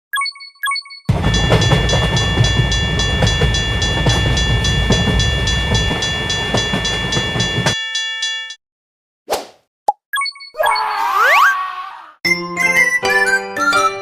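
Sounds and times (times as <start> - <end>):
train rumbling past: 1.1 - 7.8
railroad crossing bell ringing: 1.1 - 8.6.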